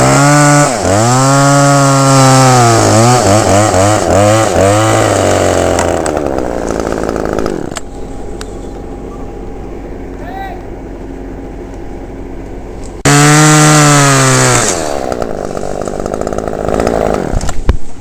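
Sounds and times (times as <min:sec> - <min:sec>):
chainsaw running at high revs: 0:00.0 - 0:07.8, 0:13.0 - 0:17.6.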